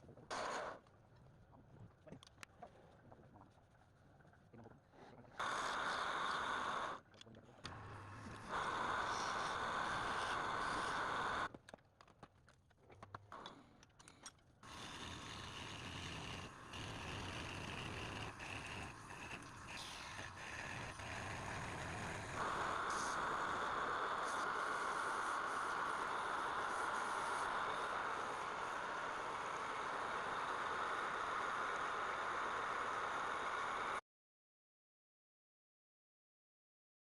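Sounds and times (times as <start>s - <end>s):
lathe tool cutting spinning wood: 7.7s - 11.5s, 14.7s - 34.0s.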